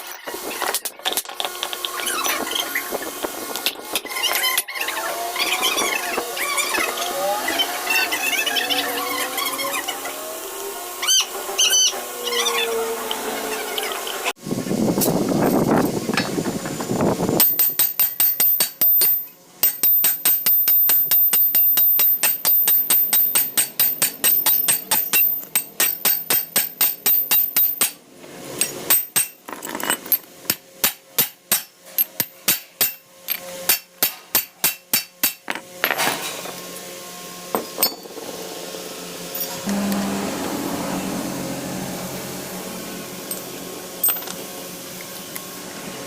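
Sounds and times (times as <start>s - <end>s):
hammer striking metal: 17.4s - 28.0s
rough noisy sound: 37.6s - 46.0s.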